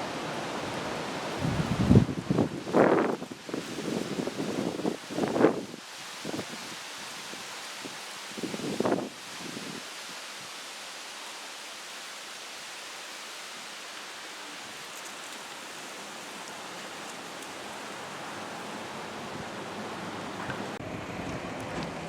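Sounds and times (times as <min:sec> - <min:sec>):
outdoor ambient hiss: 0:00.0 - 0:22.0.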